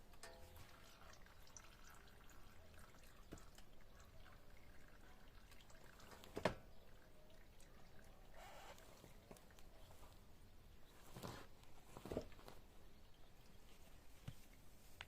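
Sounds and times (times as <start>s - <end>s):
oil trickling into drain pan: 0.0s - 10.8s.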